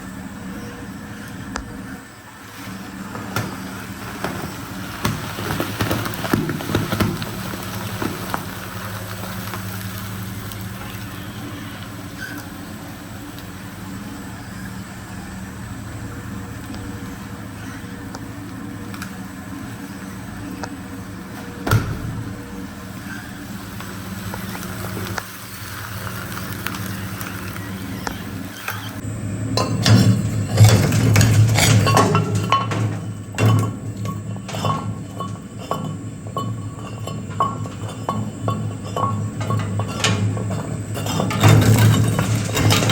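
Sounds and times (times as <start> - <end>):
shredder crunching material: 2.5 - 13.7, 21.4 - 29.0, 39.8 - 42.9.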